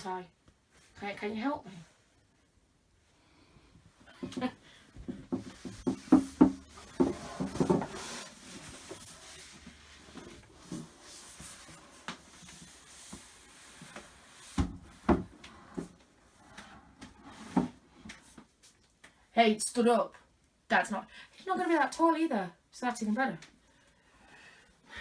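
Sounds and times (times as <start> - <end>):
wooden panels knocking and bumping: 4.2 - 8.2
wood rubbing and scraping: 4.2 - 17.8.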